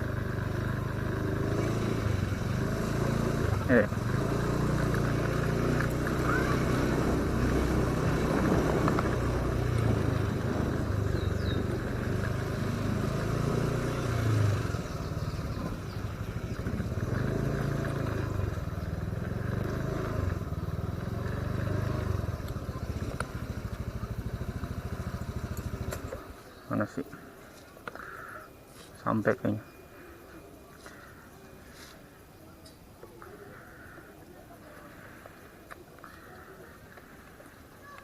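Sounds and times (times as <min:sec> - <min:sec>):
motorcycle engine running: 0:00.0 - 0:28.3.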